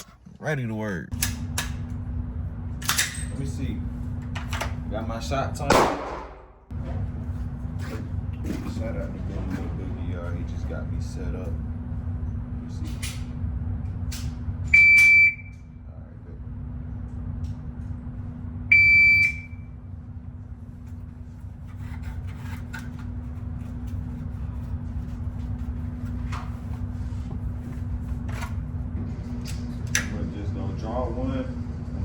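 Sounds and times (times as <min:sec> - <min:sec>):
steady low hum: 0:00.0 - 0:32.0
shot timer high beep: 0:14.8 - 0:15.6, 0:18.7 - 0:19.6.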